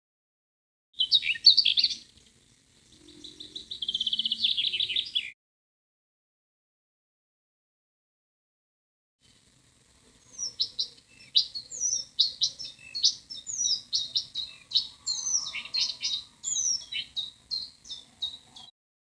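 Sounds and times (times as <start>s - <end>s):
songbird chirping: 1.0s - 5.4s, 9.3s - 18.7s.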